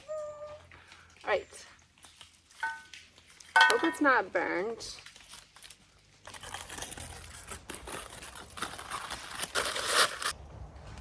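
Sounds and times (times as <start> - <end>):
wrapping crinkling and rustling: 4.5 - 10.4.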